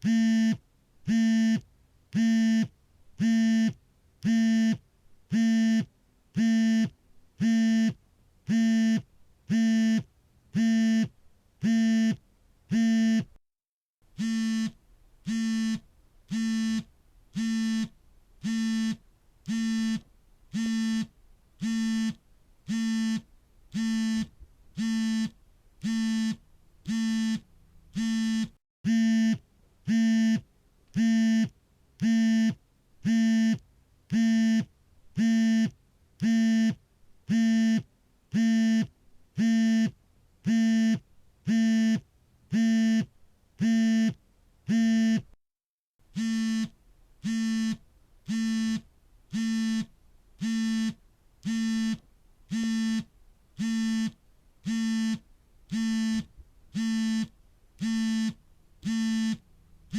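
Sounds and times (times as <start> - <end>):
phone vibrating buzzes: 0.0 - 1.6, 2.2 - 13.3, 14.2 - 30.4, 31.0 - 45.3, 46.1 - 59.9.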